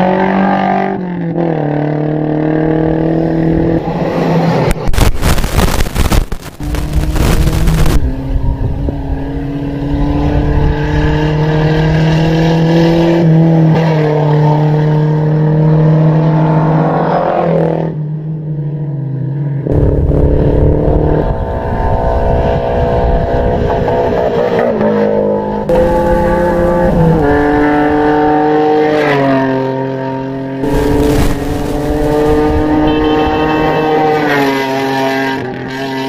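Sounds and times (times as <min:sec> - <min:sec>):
loud rough noise: 0:04.7 - 0:08.3, 0:19.7 - 0:22.2, 0:25.7 - 0:28.6, 0:30.6 - 0:34.2
racing engine running hard: 0:05.0 - 0:09.4, 0:25.7 - 0:28.5, 0:30.6 - 0:34.1.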